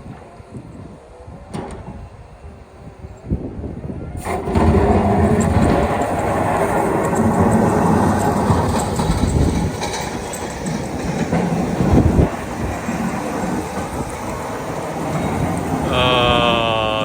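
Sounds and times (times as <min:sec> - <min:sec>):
diesel engine rumble: 0:04.2 - 0:17.0.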